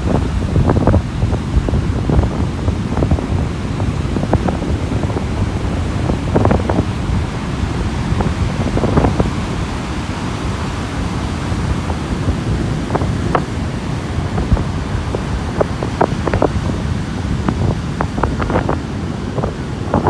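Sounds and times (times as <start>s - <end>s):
sea waves washing onto beach: 0.0s - 20.0s
wind buffeting microphone: 0.0s - 20.0s.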